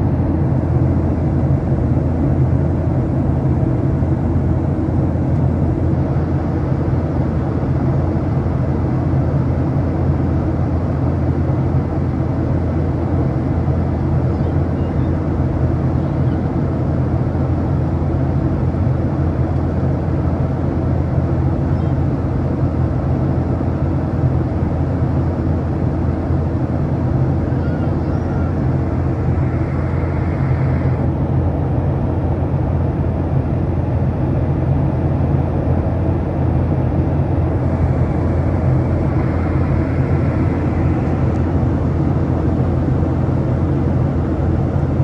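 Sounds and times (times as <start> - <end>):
jet engine hum: 0.0 - 45.0
cabin air rush: 26.6 - 32.0, 36.0 - 44.9.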